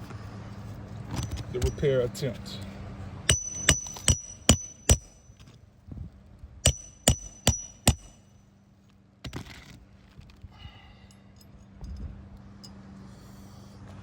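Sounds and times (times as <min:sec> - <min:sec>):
hammer striking nails with metallic ring: 0:01.2 - 0:01.9, 0:03.3 - 0:05.5, 0:06.6 - 0:08.4.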